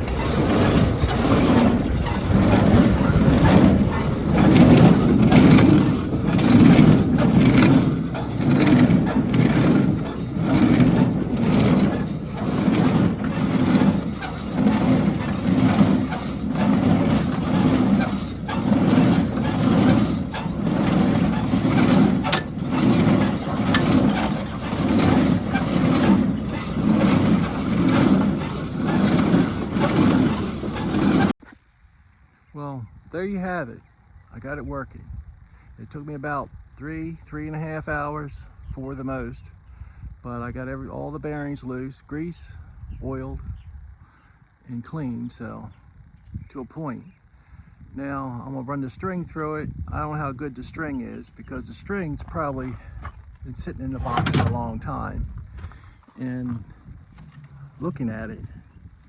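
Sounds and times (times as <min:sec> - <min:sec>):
hay baler pulsing: 0:00.0 - 0:31.4, 0:50.2 - 0:55.0, 0:55.6 - 0:59.0.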